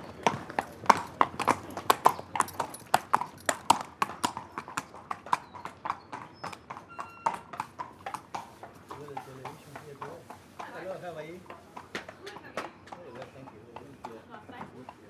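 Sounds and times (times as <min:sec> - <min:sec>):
horse hooves clip-clopping: 0:00.0 - 0:15.0.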